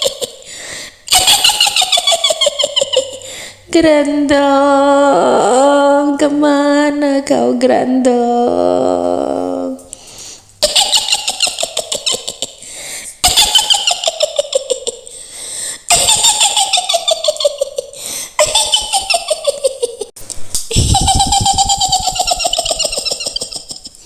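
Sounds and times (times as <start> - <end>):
woman's high cackling laugh: 0.0 - 0.5, 1.1 - 3.3, 10.6 - 12.6, 13.2 - 15.1, 15.9 - 20.1, 20.7 - 24.0.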